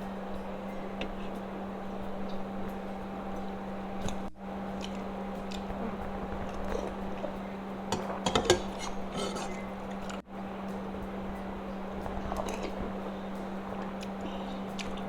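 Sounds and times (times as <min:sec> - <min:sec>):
steady low hum: 0:00.0 - 0:15.0
cutlery clinking on a plate: 0:06.5 - 0:10.2.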